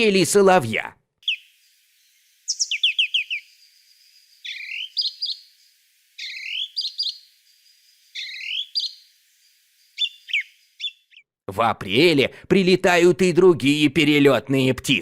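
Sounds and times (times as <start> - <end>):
song thrush singing: 1.2 - 11.4.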